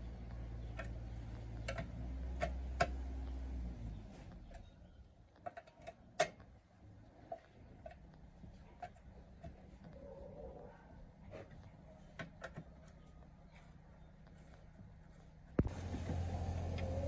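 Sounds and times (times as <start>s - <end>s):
low steady hum: 6.6s - 17.0s.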